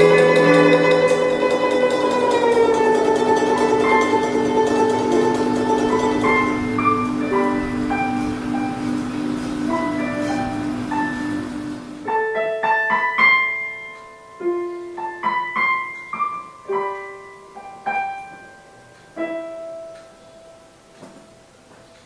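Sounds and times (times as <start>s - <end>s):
plucked string notes: 0.0s - 12.4s.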